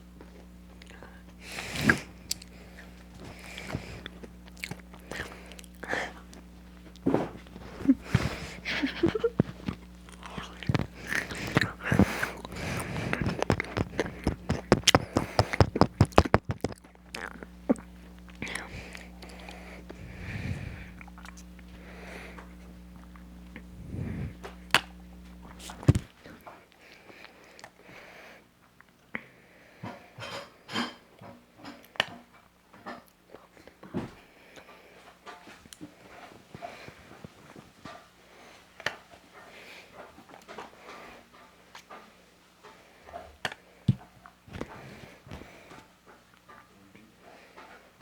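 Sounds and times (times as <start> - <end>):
fries crunching being chewed: 0.0 - 28.1.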